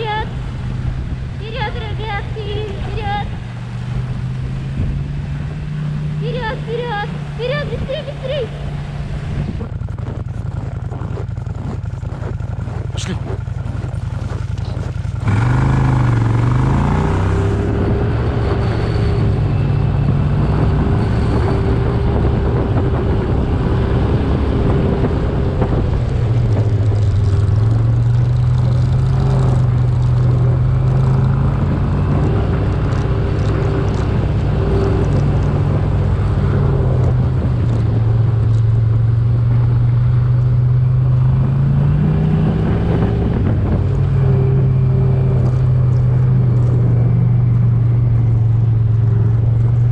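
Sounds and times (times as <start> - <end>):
motor engine running: 0.0 - 18.3.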